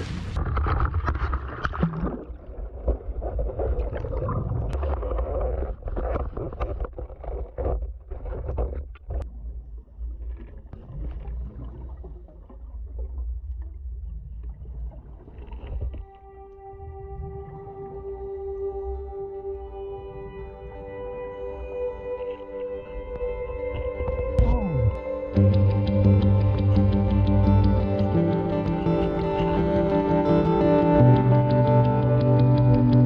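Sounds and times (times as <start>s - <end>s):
water splashing against hull: 0.0s - 27.0s
boat engine rumble: 0.0s - 33.0s.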